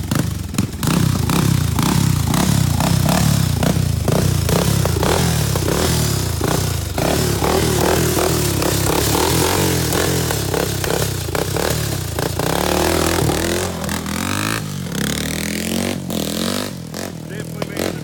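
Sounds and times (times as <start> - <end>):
atv engine revving: 0.0 - 18.0.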